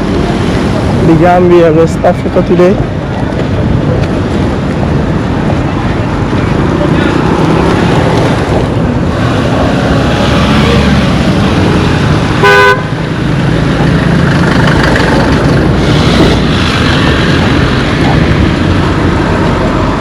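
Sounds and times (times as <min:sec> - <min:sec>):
road traffic: 0:00.0 - 0:20.0
vehicle horn toot: 0:12.4 - 0:12.9.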